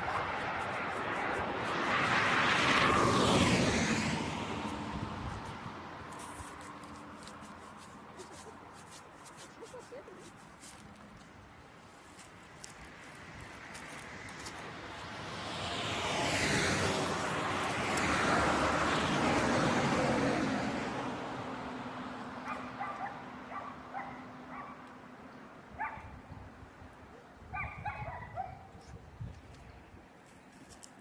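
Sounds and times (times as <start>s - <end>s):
vehicle passing: 0.0s - 8.7s, 12.8s - 25.2s
dog yipping and barking: 22.4s - 24.8s, 25.8s - 26.1s, 27.5s - 28.7s.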